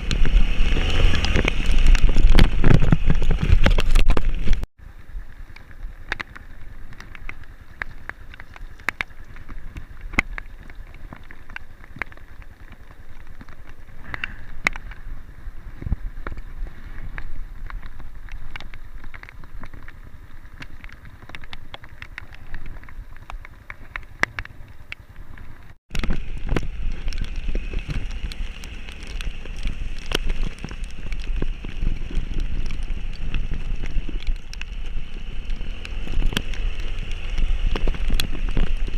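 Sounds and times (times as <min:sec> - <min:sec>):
sharp taps and clicks: 0:20.6 - 0:38.9.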